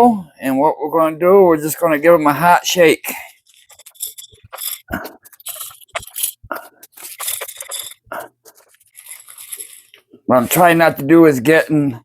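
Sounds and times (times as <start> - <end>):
grain rattling in shaken glass jars: 3.4 - 10.0.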